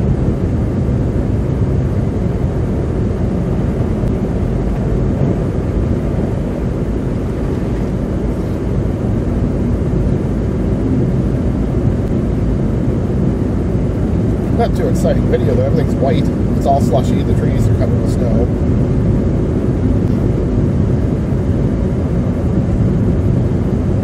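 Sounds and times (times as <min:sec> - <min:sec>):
car road noise drone: 0:00.0 - 0:24.0
faint hum: 0:00.0 - 0:24.0.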